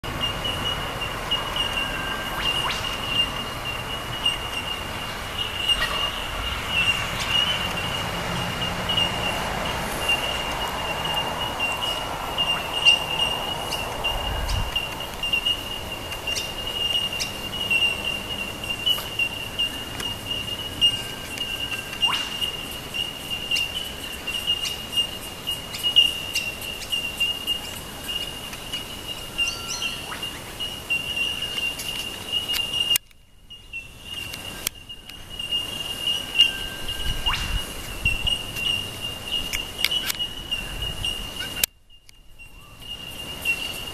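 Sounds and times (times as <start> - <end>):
steady high-pitched drone: 0.0 - 33.0
bird chirps and calls: 0.1 - 41.7.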